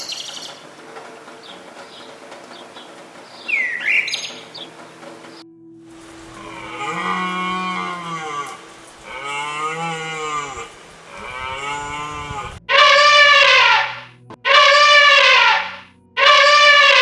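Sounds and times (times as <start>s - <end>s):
cow mooing: 6.1s - 17.0s
loud bright animal call: 6.2s - 17.0s.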